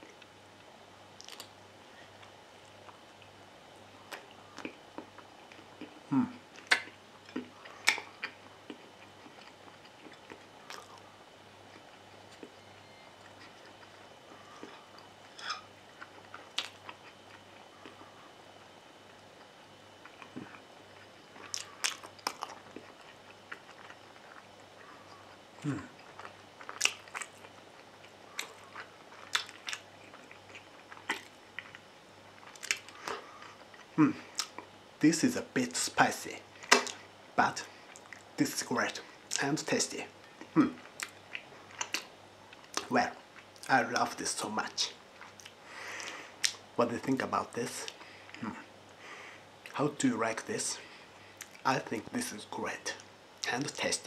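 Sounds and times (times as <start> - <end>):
person chewing: 1.2 - 1.5, 4.1 - 12.6, 13.2 - 34.7, 36.6 - 37.0, 40.3 - 43.8, 45.2 - 46.6, 51.4 - 51.6
wet chewing mouth clicks: 6.6 - 11.0, 28.3 - 31.8.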